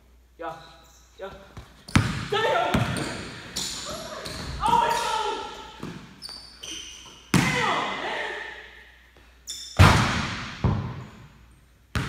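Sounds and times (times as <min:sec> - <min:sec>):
shoe squeaks: 0:00.8 - 0:01.2, 0:02.9 - 0:07.3, 0:09.4 - 0:09.8
basketball bouncing on wooden floor: 0:01.5 - 0:05.0, 0:05.8 - 0:06.4, 0:09.8 - 0:11.1.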